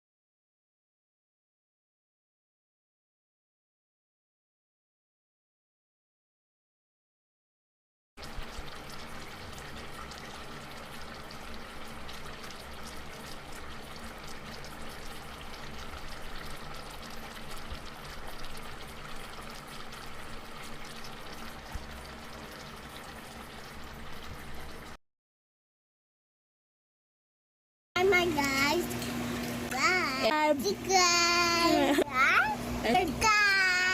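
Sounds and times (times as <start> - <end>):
liquid bubbling in a pot: 8.2 - 25.0, 28.0 - 33.9.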